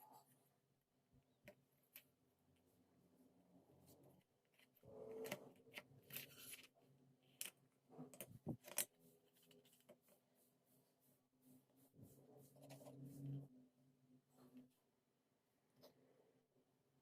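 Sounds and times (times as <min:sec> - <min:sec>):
rustling and scraping of small parts: 0:03.8 - 0:11.0, 0:11.6 - 0:13.5.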